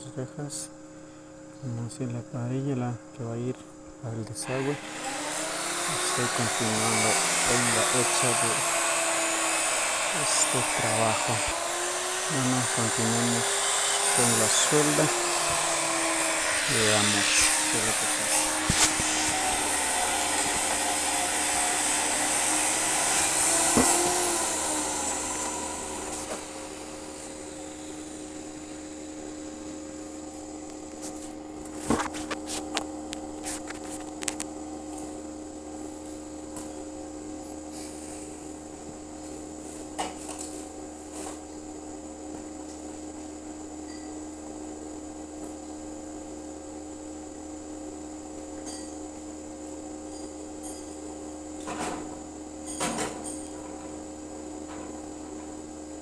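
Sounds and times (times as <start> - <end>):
steady hum: 0.0 - 34.8
arc welding crackling hiss: 4.4 - 34.4.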